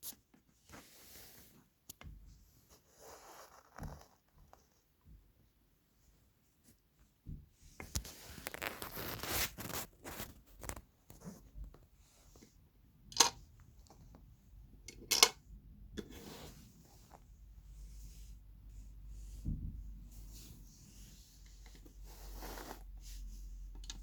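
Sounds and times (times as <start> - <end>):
rustling and scraping of parts: 7.8 - 12.6, 16.0 - 17.3.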